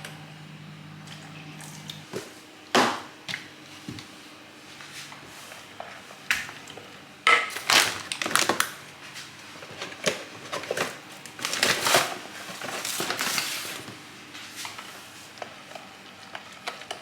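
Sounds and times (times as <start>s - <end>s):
crunching and crackling: 7.5s - 17.0s.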